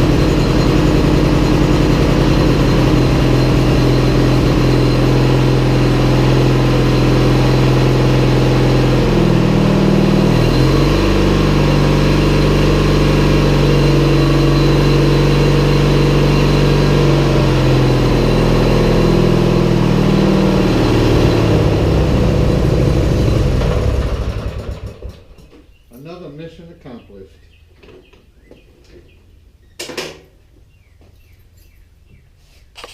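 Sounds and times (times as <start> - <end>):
riding mower engine running: 0.0 - 25.6.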